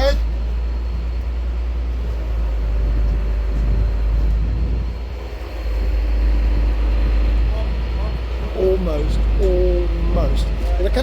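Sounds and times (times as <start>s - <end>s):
crane engine drone: 0.0s - 11.0s.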